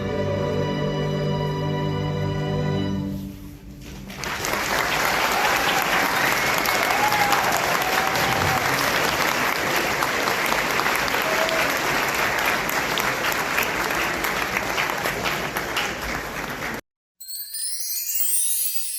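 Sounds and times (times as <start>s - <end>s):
audience applauding: 4.1s - 16.8s.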